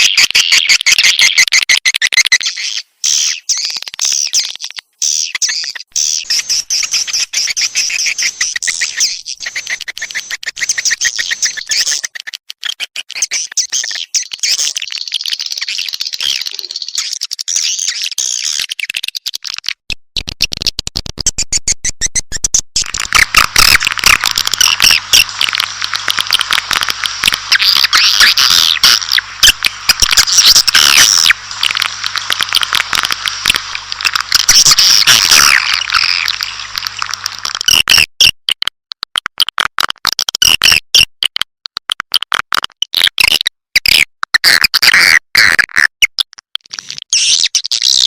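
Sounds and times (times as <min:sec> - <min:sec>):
swiftlets chittering: 0:22.8 - 0:37.7.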